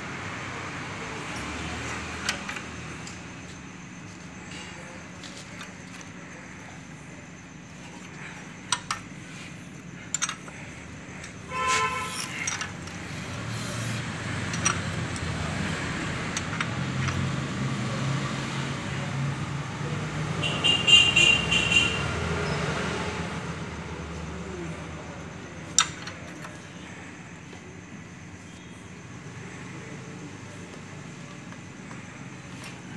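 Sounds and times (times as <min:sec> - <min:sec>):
vehicle engine hum: 0:00.0 - 0:32.9
high horn-like tone: 0:11.5 - 0:12.2
vehicle horn toot: 0:11.5 - 0:12.4, 0:20.4 - 0:22.2.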